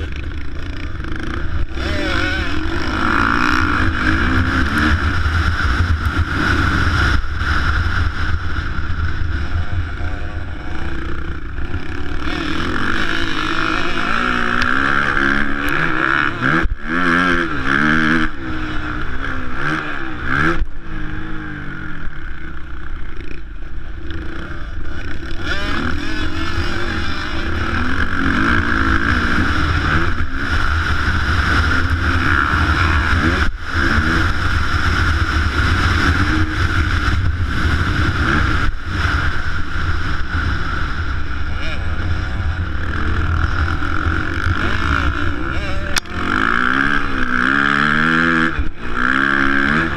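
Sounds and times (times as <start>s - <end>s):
steady low rumble: 0.0s - 16.8s
motorcycle engines revving: 0.0s - 49.9s.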